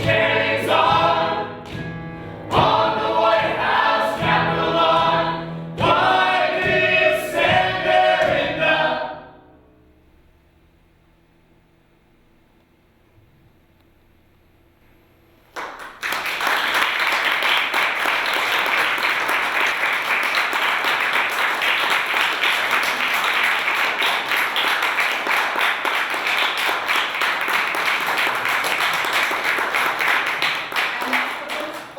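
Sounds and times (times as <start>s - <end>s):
audience applauding: 15.6s - 31.9s.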